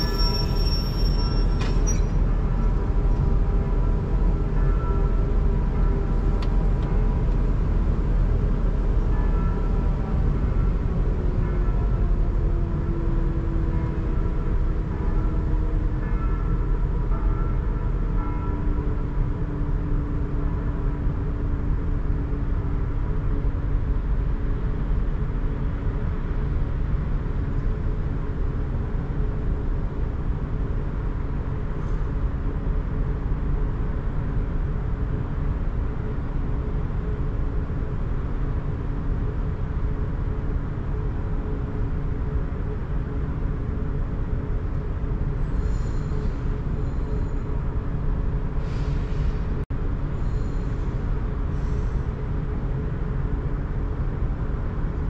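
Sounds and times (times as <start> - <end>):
faint high-pitched squealing: 0.0 - 2.3
train wheels rumbling on rail: 0.0 - 55.0.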